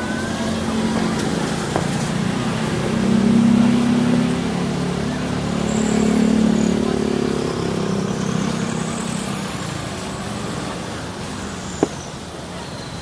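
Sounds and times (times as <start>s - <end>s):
vehicle engine running: 0.0s - 12.4s.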